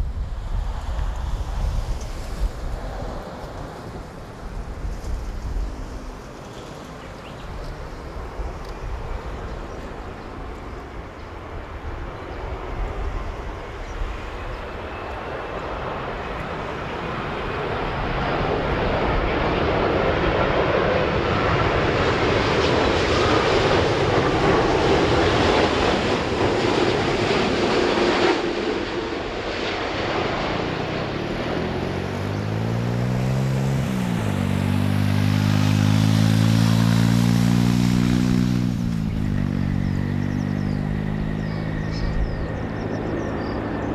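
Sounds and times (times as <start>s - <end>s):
jet engines passing overhead: 0.0s - 43.9s
road vehicle engine revving: 31.0s - 42.8s.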